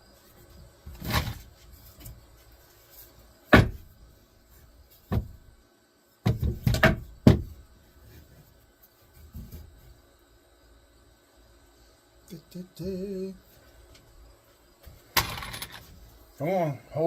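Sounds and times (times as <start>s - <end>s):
boards and tools knocking on workbench: 3.5s - 3.9s, 5.1s - 5.4s, 6.2s - 7.6s.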